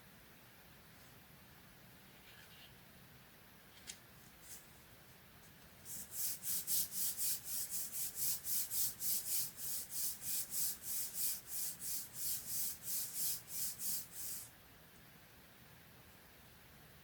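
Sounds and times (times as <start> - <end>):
rubbing on paper: 5.8 - 14.5.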